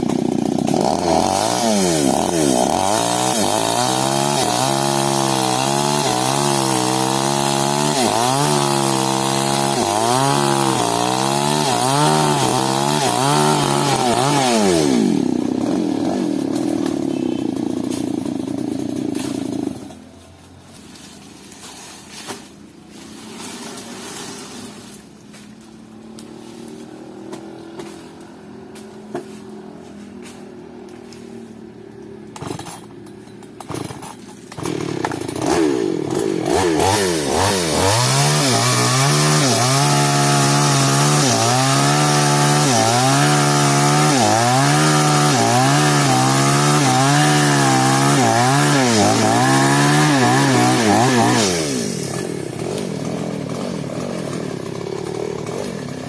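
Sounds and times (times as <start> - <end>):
chainsaw idling and revving: 0.0 - 21.9, 22.9 - 56.0
chainsaw cutting wood: 0.0 - 56.0.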